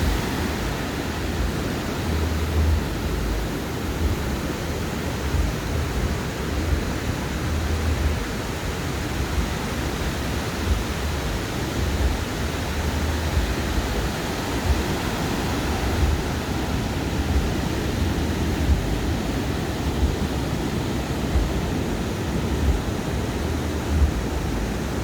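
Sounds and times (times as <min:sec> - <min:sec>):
waves breaking on a beach: 0:00.0 - 0:25.0
low rumble: 0:15.7 - 0:25.0.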